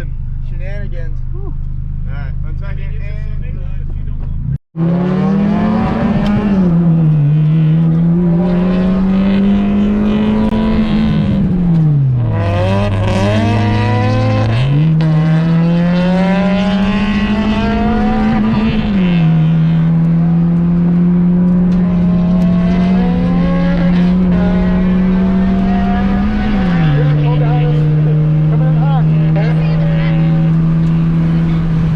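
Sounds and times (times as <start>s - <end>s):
car engine revving hard: 4.8s - 31.9s.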